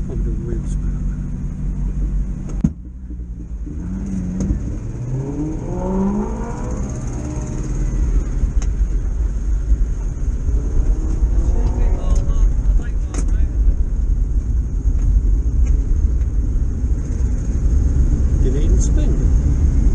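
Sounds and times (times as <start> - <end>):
van engine running: 0.0 - 19.9.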